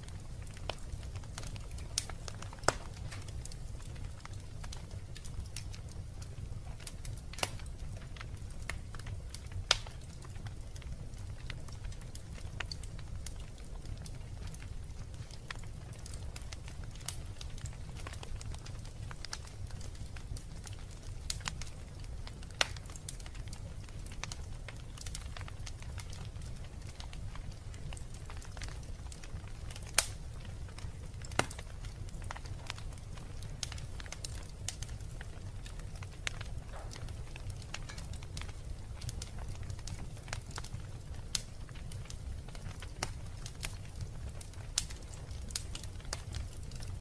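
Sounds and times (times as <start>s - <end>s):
wood fire burning: 0.0s - 47.0s.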